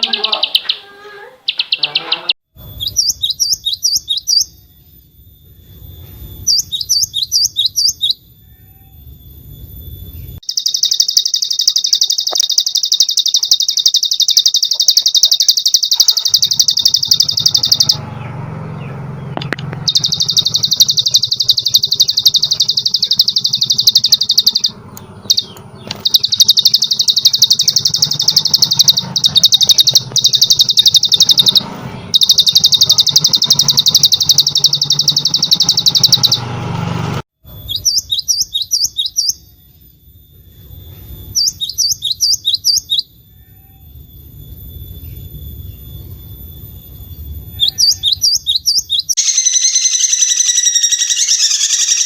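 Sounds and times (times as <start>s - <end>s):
bird downward-sweeping chirps: 0.0s - 36.8s, 37.4s - 52.0s
songbird high trill: 1.5s - 18.1s, 19.8s - 36.6s, 37.6s - 52.0s.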